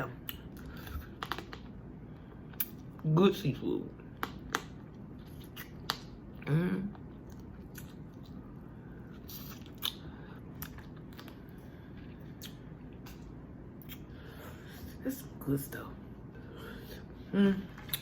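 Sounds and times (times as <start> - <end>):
hum-like vocal sound: 6.4 - 7.0, 16.4 - 18.0
chewing: 9.1 - 14.1.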